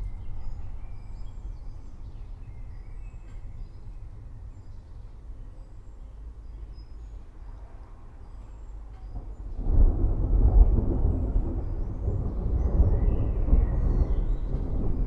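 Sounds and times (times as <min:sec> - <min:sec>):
rolling thunder: 0:09.2 - 0:15.0.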